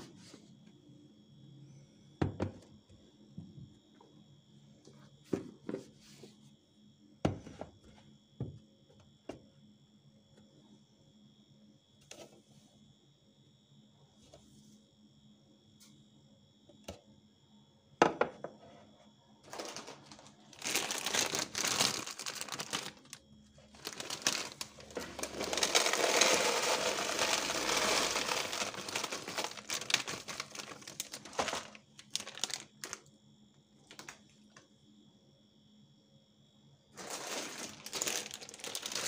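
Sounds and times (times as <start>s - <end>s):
plastic packaging crinkling: 19.4s - 33.1s, 33.8s - 34.2s, 37.0s - 39.0s.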